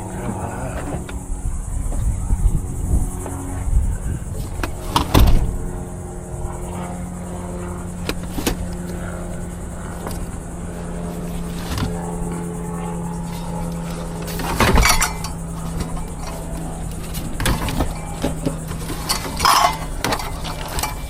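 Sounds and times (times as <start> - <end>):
vehicle engine idling: 0.0 - 21.0
sharp knocks and clanks: 13.3 - 21.0.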